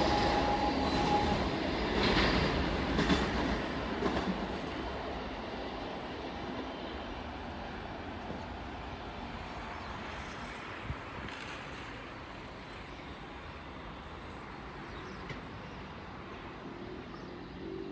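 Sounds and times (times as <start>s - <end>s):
freight train rumbling by: 0.0s - 17.9s.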